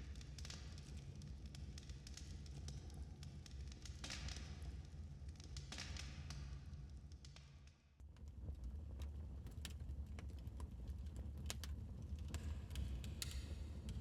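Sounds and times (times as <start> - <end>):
wood fire crackling and popping: 8.6 - 14.0.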